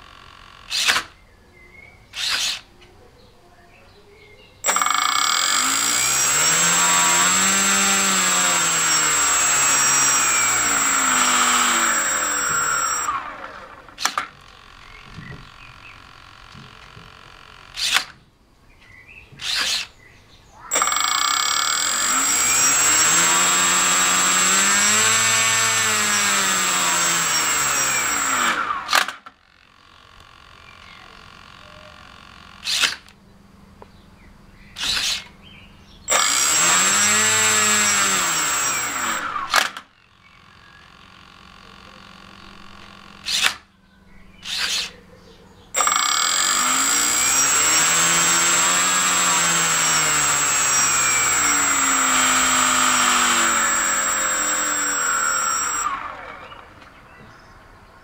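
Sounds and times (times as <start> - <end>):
steady high whine: 4.6 - 16.5, 45.8 - 56.3
small motor mechanism running: 4.6 - 18.1, 20.7 - 33.1, 36.1 - 39.8, 40.6 - 43.6, 45.8 - 56.8.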